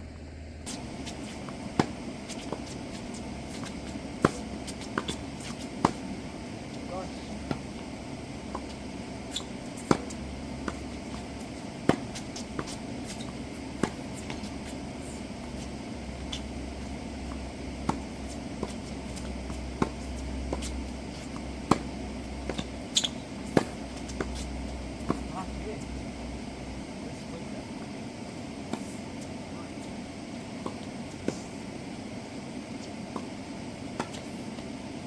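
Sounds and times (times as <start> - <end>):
tennis ball bouncing: 0.6 - 35.0
racket striking tennis ball: 0.7 - 25.6, 28.6 - 31.7.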